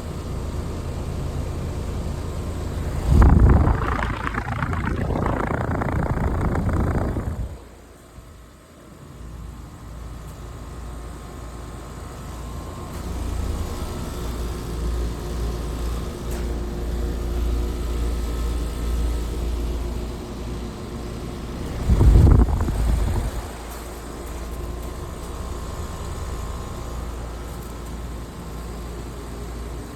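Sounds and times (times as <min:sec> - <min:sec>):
heat pump hum and fan rumble: 0:00.0 - 0:29.9.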